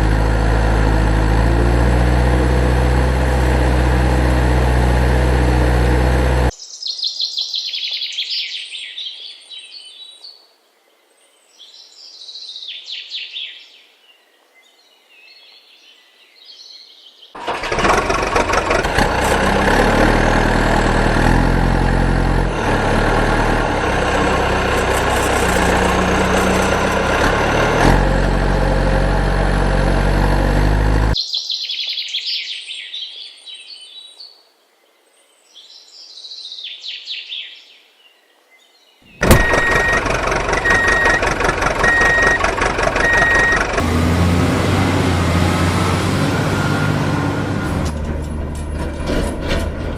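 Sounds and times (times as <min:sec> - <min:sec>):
loud mechanical rumble: 0:00.0 - 0:06.5, 0:17.4 - 0:31.2, 0:39.2 - 0:49.9.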